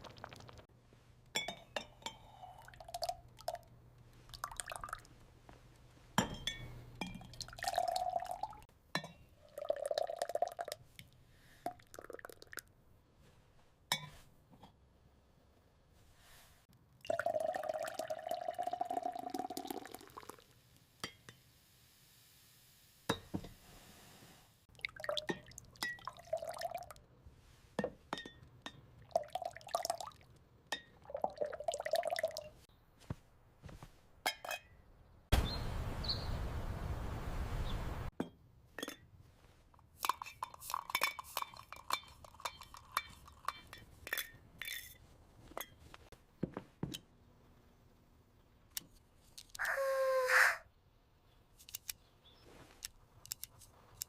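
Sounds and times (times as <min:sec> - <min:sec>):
liquid pouring and dripping: 0:00.0 - 0:00.7, 0:02.5 - 0:05.2, 0:07.1 - 0:08.7, 0:09.4 - 0:12.7, 0:17.0 - 0:20.6, 0:24.7 - 0:27.0, 0:29.0 - 0:32.6, 0:40.0 - 0:43.9
glassware and utensils clinking: 0:01.3 - 0:02.6, 0:06.2 - 0:09.3, 0:34.3 - 0:34.8, 0:38.2 - 0:39.1, 0:40.0 - 0:45.9.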